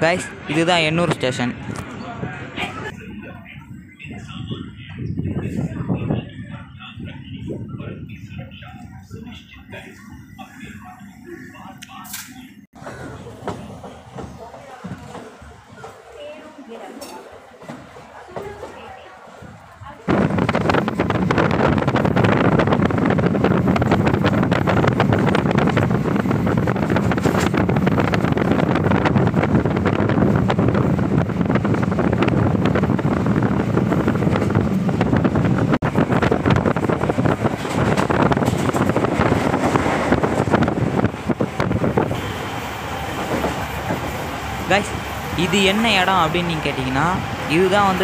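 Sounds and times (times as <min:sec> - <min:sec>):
wind buffeting microphone: 0:01.6 - 0:10.3, 0:18.6 - 0:48.0
train wheels rumbling and rattling: 0:12.8 - 0:16.2, 0:16.9 - 0:48.0.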